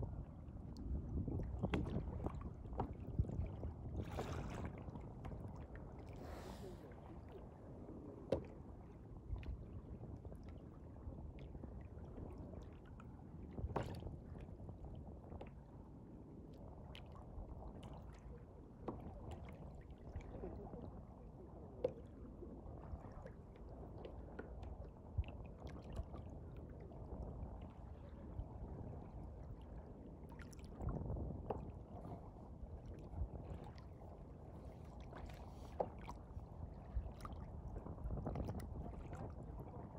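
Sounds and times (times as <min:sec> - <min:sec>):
boat engine rumble: 0:00.0 - 0:10.2.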